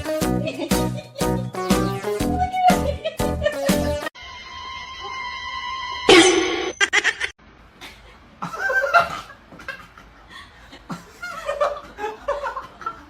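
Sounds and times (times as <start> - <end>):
people snickering and chuckling: 2.3 - 4.1
steady electronic tone: 4.2 - 6.9.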